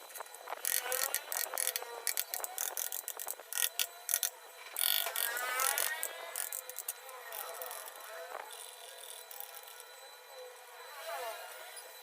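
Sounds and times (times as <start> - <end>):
carving tool cutting wood: 0.1 - 9.9.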